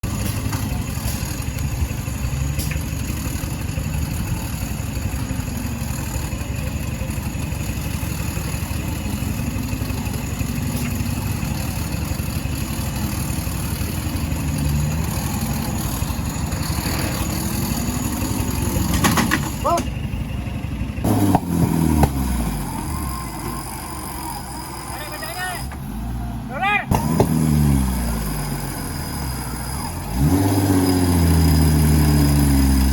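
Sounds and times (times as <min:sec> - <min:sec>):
car engine at low revs: 0:00.0 - 0:32.9.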